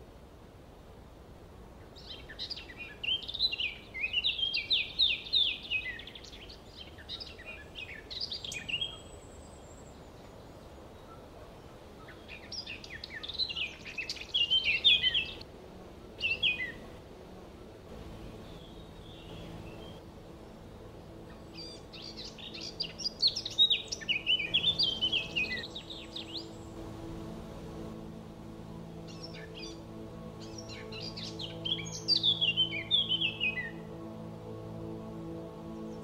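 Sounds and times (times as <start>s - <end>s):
songbird chirping: 0.0s - 36.0s
steady low background noise: 0.0s - 36.0s.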